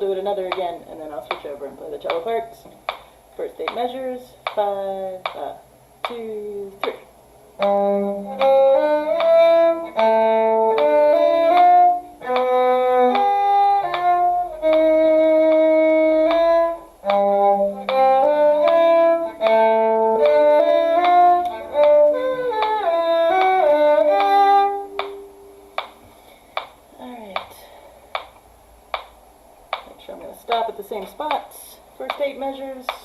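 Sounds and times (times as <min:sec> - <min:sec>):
slow violin duet: 0:07.6 - 0:25.9.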